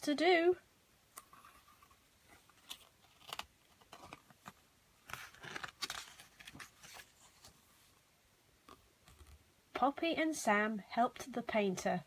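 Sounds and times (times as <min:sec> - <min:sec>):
paper page rustling: 0:01.2 - 0:07.9.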